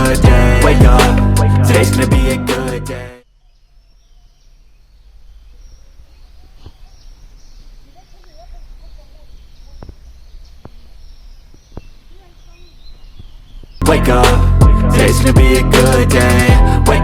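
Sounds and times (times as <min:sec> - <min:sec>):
steady low rumble: 0:00.0 - 0:03.1, 0:13.8 - 0:17.0
birds chirping: 0:00.0 - 0:14.2.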